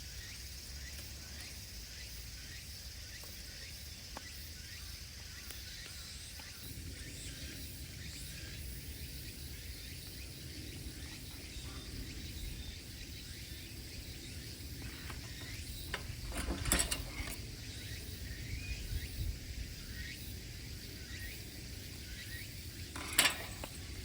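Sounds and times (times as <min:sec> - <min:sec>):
high insect-like hum: 0:00.0 - 0:24.0
clicking clatter: 0:14.9 - 0:17.7, 0:22.8 - 0:24.0.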